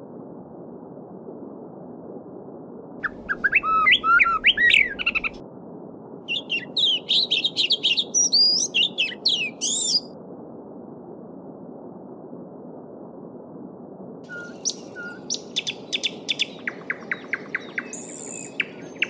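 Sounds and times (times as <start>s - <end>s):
songbirds singing: 3.0s - 5.4s, 6.3s - 10.0s, 14.3s - 19.0s.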